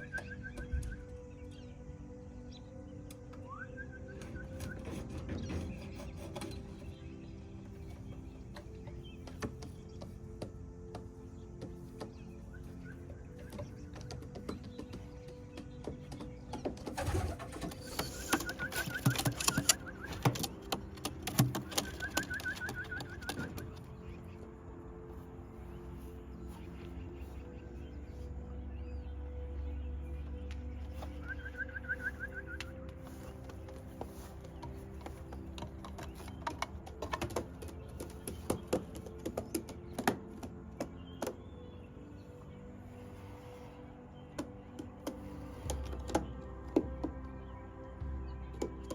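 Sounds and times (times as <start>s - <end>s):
pigeons cooing: 12.1s - 23.8s.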